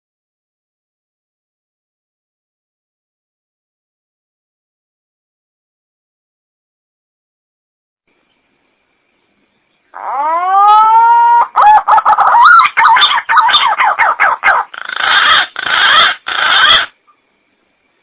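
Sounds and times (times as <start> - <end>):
bird calling and warbling: 9.9 - 17.2.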